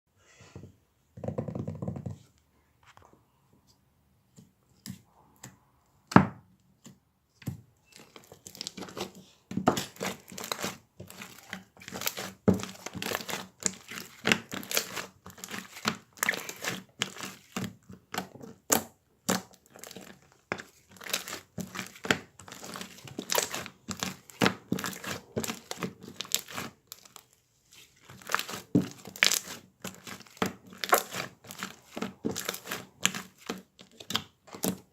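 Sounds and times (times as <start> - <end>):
slime squelching by hand: 7.8 - 34.9.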